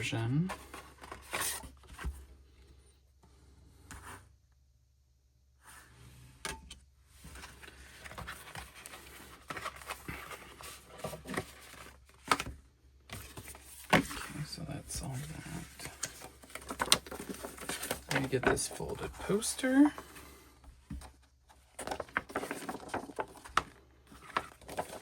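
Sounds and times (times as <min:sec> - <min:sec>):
paper and card rustling: 0:00.0 - 0:02.3, 0:07.2 - 0:25.0.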